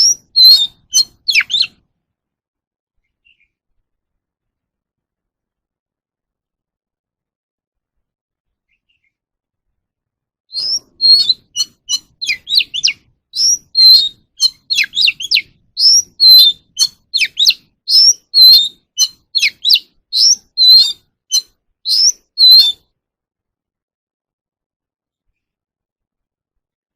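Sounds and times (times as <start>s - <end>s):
bird singing whistled notes: 0.0s - 1.8s, 10.5s - 22.9s.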